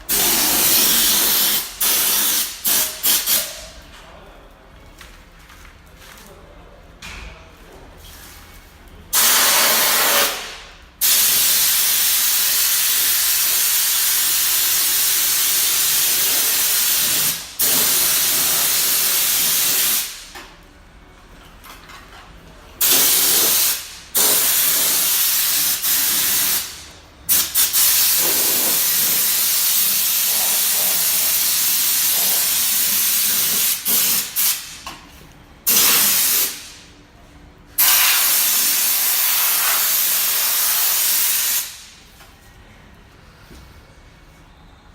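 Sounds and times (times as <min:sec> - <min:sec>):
compressed air hissing: 0:00.1 - 0:03.6, 0:37.8 - 0:41.9.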